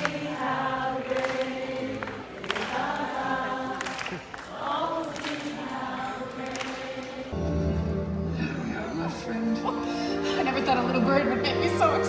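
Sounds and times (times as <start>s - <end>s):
choir singing held notes: 0.0s - 12.0s
music: 7.3s - 12.0s.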